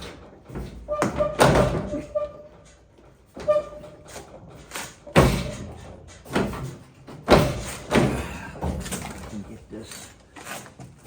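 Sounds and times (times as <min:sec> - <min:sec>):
truck door slamming: 0:00.0 - 0:02.2, 0:05.0 - 0:09.2.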